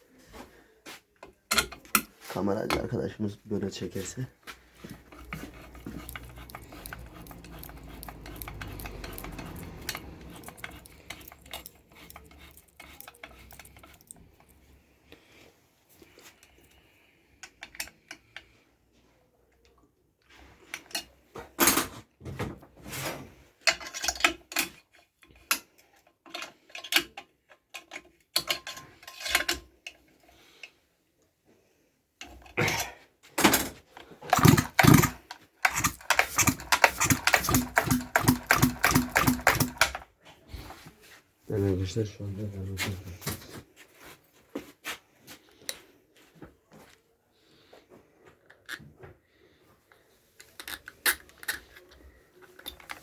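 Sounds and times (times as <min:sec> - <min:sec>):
metal tools clinking: 0:05.1 - 0:14.6, 0:34.3 - 0:40.0.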